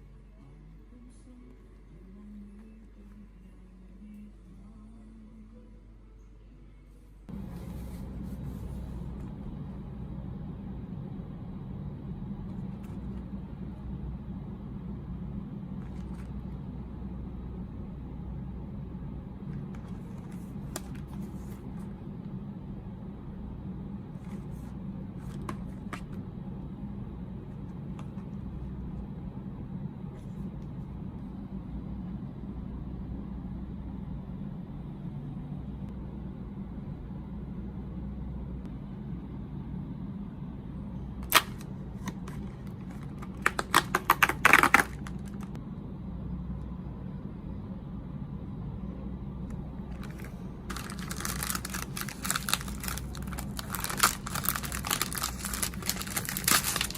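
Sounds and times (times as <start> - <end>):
low hum: 0.0 - 56.9
snack packaging crackling: 41.2 - 45.5, 50.0 - 56.9.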